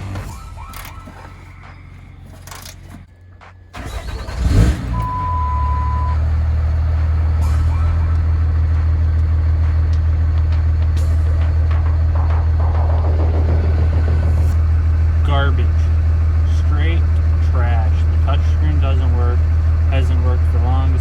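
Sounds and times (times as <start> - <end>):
diesel engine starting and idling: 0.0 - 21.0
steady beep: 4.9 - 6.2.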